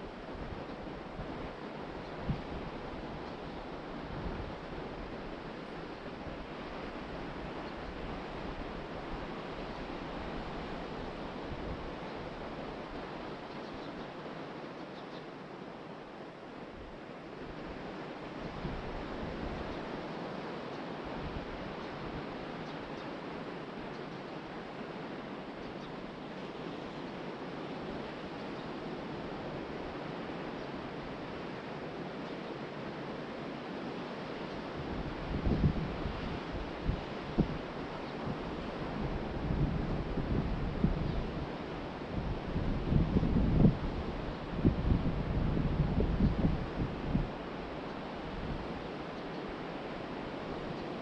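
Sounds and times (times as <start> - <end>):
wind blowing over microphone: 0.0 - 13.9, 16.7 - 20.3, 34.4 - 51.0
wind buffeting microphone: 34.7 - 49.0.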